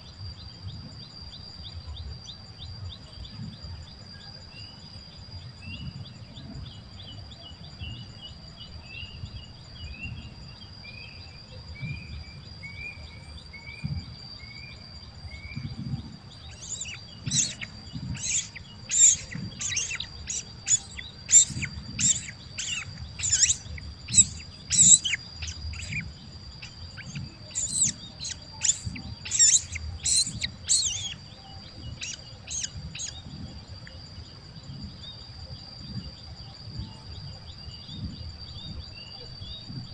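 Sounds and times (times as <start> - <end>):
high insect drone: 0.0 - 39.9
sharp bird chirps: 15.3 - 33.3
birds calling: 16.3 - 33.3.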